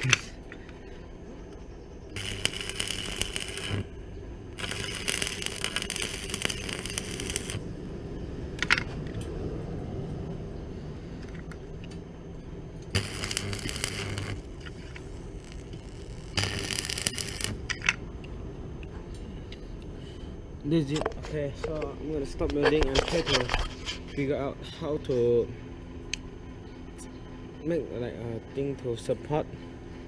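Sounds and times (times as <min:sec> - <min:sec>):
arc welder crackling sizzle: 0:01.6 - 0:08.0, 0:12.7 - 0:18.2.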